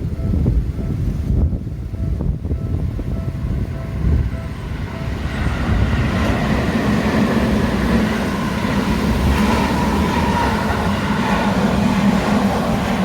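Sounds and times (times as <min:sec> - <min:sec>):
electric train rumbling past: 0:00.0 - 0:13.0
train whine: 0:00.0 - 0:13.0
level crossing bell pulsing: 0:02.0 - 0:06.4.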